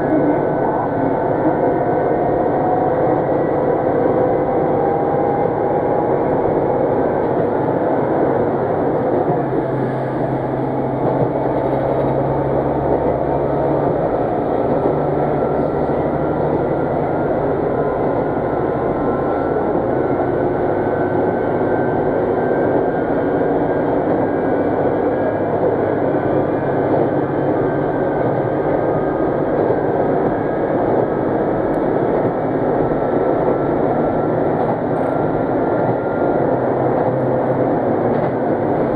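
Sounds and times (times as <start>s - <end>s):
train wheels and engine rumbling: 0.0s - 38.9s.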